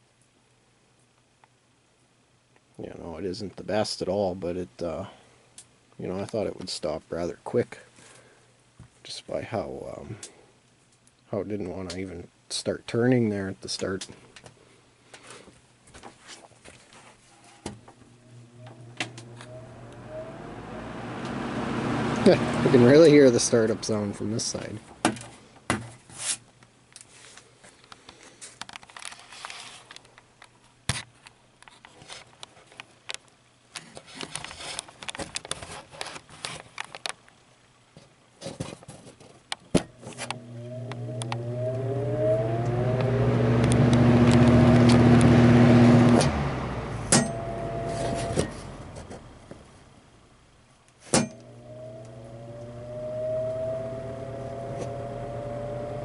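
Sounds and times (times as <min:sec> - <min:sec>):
fan rushing air: 0:17.7 - 0:25.7, 0:40.0 - 0:50.6, 0:51.2 - 0:56.0
fan motor whining: 0:17.9 - 0:25.3, 0:40.0 - 0:50.5, 0:51.2 - 0:56.0.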